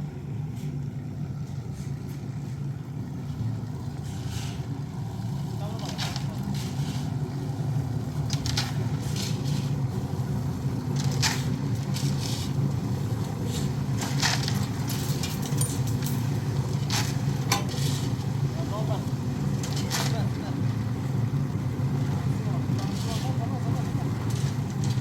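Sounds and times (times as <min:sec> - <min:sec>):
engine running: 0:00.0 - 0:25.0
scraping or crunching noises: 0:05.8 - 0:07.2, 0:08.2 - 0:10.0, 0:10.9 - 0:12.7, 0:13.3 - 0:18.3, 0:22.7 - 0:25.0.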